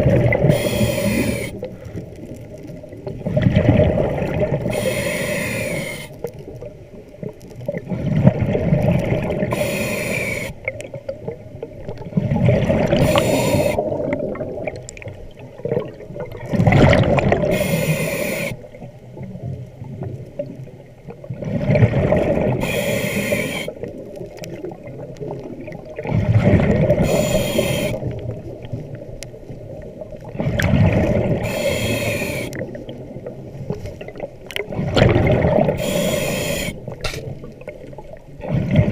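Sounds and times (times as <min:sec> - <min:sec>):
exhaled bubbles rumbling: 0:00.0 - 0:38.9
regulator hissing inhale: 0:00.5 - 0:02.0, 0:04.7 - 0:06.2, 0:09.5 - 0:10.6, 0:13.0 - 0:13.8, 0:17.5 - 0:18.7, 0:22.6 - 0:23.8, 0:27.0 - 0:28.0, 0:31.4 - 0:32.6, 0:35.8 - 0:36.8.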